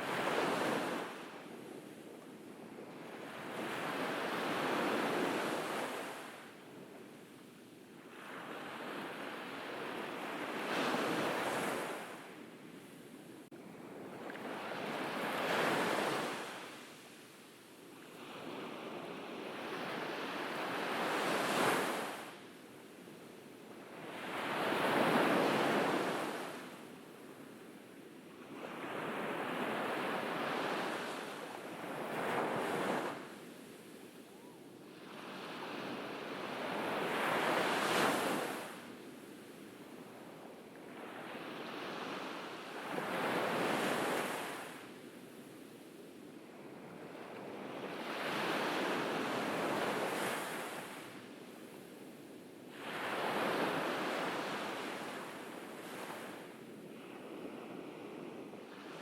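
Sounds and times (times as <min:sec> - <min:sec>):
waves breaking on a beach: 0:00.0 - 0:59.0.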